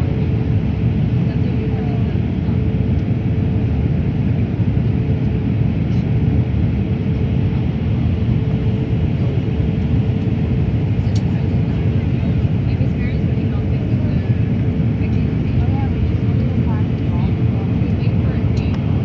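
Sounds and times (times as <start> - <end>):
engine and airflow rumble: 0.0 - 19.0.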